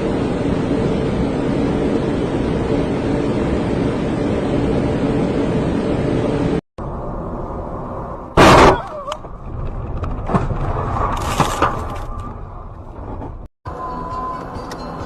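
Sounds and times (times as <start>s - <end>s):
car engine and road noise: 0.0s - 15.0s
loud collision bang: 8.4s - 8.9s.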